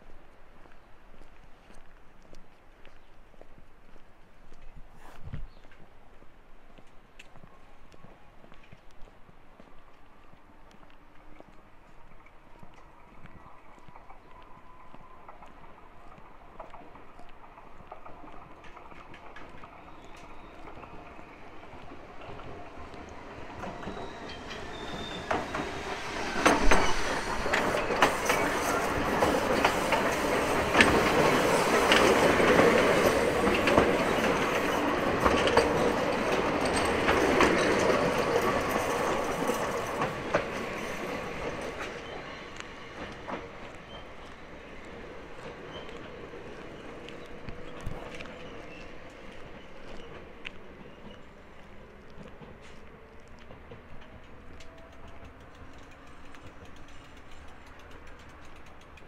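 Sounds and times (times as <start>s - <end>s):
electric train passing: 11.9s - 59.0s.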